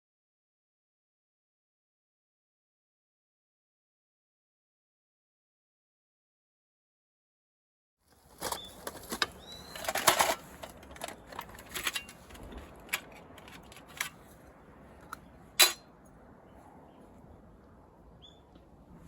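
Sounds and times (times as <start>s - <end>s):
sharp clicks and knocks: 8.9s - 14.2s.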